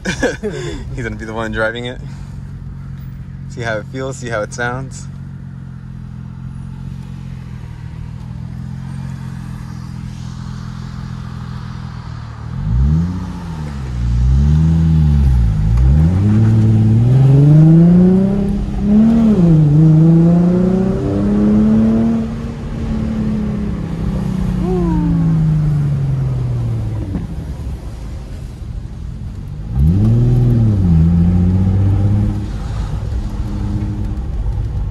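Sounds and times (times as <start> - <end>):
car engine idling and revving: 0.0 - 34.9
car accelerating through gears: 12.5 - 27.3, 29.7 - 34.9.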